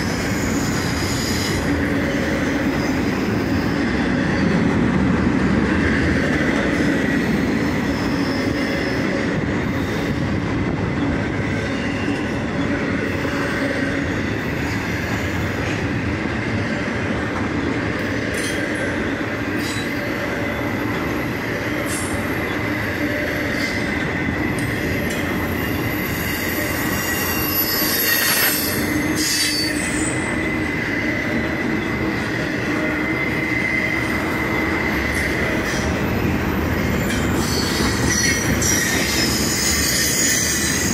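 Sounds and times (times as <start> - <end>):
high wheel squeal: 0.0 - 4.6, 18.0 - 40.9
freight train rolling past: 0.0 - 40.9.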